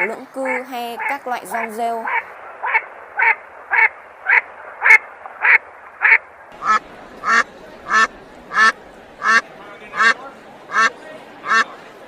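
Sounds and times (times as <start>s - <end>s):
ducks quacking: 0.0s - 11.8s.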